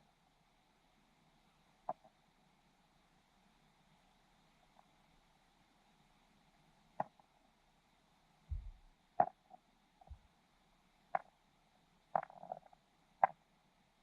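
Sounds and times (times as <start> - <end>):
dull underwater thumps: 8.5 - 8.9
sharp underwater clicks: 12.2 - 13.4.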